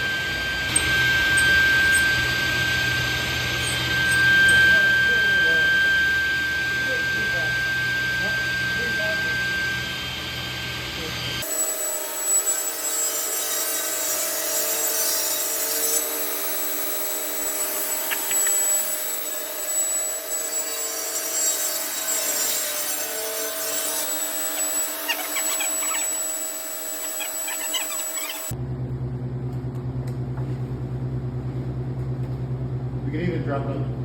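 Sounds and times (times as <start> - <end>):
power saw cutting wood: 0.0 - 28.6.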